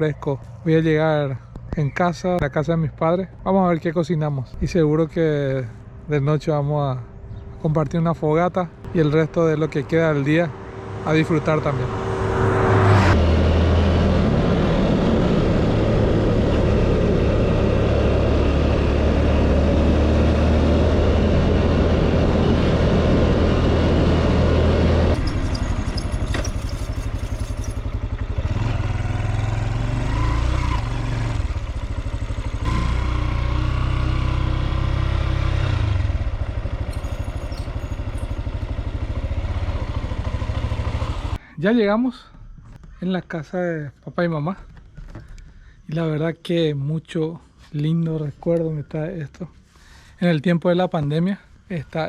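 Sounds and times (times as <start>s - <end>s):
motorcycle engine running: 8.9s - 41.4s.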